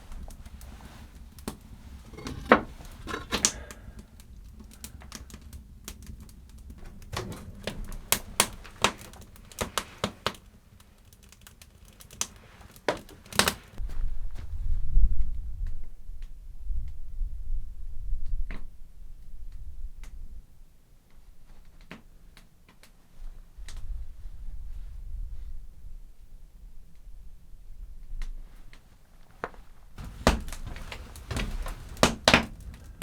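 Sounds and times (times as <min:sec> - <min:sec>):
sharp clicks and knocks: 0:01.5 - 0:03.7, 0:30.0 - 0:32.9.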